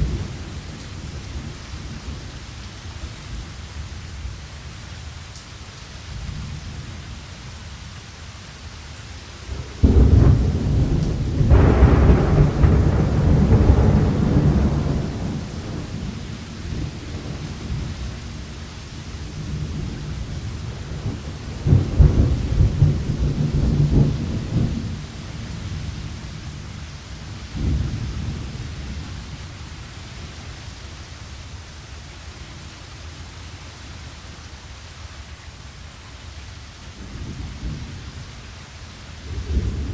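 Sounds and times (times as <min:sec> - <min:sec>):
steady rain: 0:00.0 - 0:39.9
loud thunderclap: 0:09.8 - 0:17.9, 0:21.0 - 0:25.1, 0:27.6 - 0:28.6
rolling thunder: 0:09.8 - 0:18.5, 0:19.2 - 0:26.8, 0:27.5 - 0:29.4, 0:39.3 - 0:39.9.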